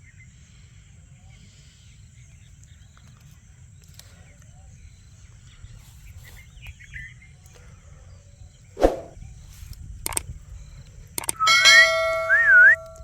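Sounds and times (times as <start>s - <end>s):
sharp clicks: 8.8s - 11.6s.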